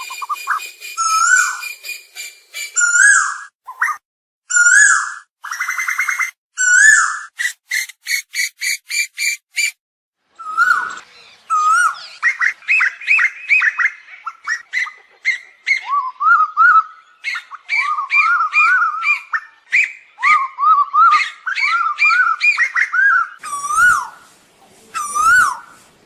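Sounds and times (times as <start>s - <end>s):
bird calling repeated notes: 0.0s - 9.8s.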